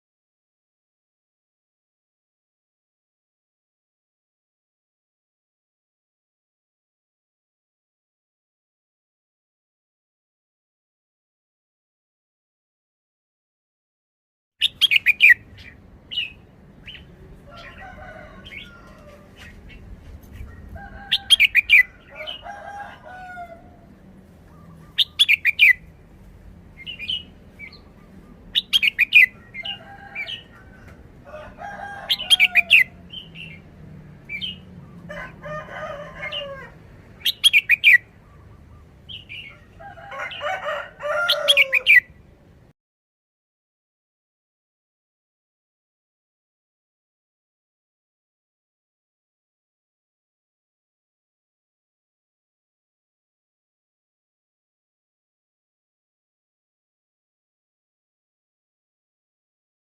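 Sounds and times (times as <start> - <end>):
bulbul singing: 14.6 - 17.7, 24.4 - 26.0, 26.8 - 30.5, 37.2 - 39.7
soft bird chirps and warbles: 14.6 - 31.1, 32.1 - 35.1, 36.2 - 42.5.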